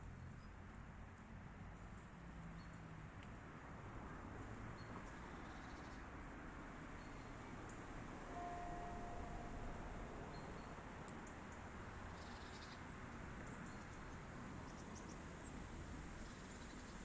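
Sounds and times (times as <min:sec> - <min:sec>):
faint bird chirps: 0:12.2 - 0:12.8.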